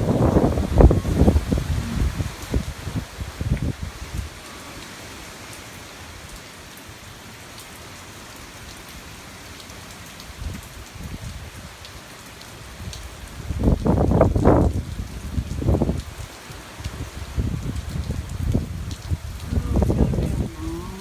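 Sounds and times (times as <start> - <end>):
wind rumbling on microphone: 0.0 - 4.4, 10.4 - 11.7, 12.8 - 21.0
heavy rain falling on surfaces: 0.0 - 21.0
rain drop ticks: 3.4 - 4.2, 11.8 - 21.0.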